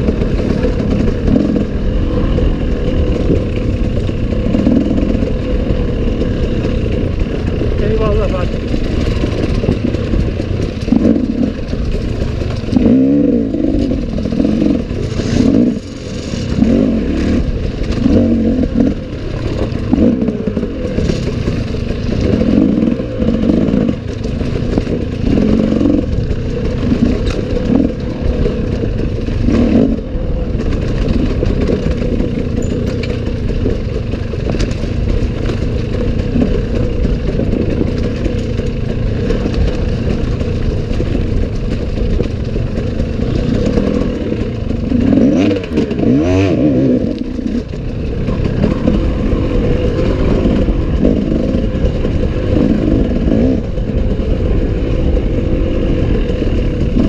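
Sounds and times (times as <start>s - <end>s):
bike clattering over rough ground: 0.0s - 57.0s
motorcycle engine revving: 0.0s - 57.0s.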